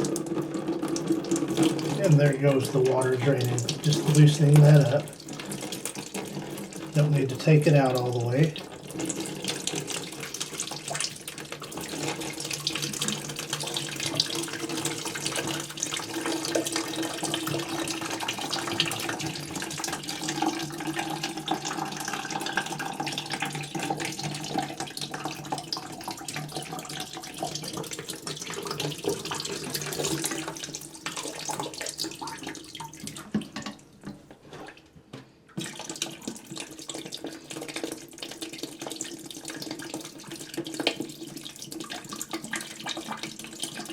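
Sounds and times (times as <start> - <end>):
water pouring into trash can: 0.0 - 34.0, 35.5 - 43.9.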